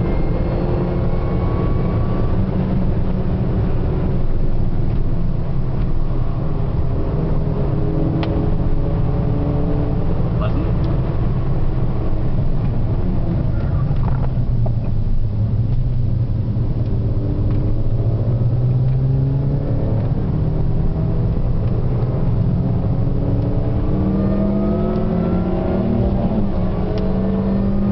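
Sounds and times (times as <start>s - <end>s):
low road rumble: 0.0s - 27.9s
car engine revving hard: 16.7s - 27.9s.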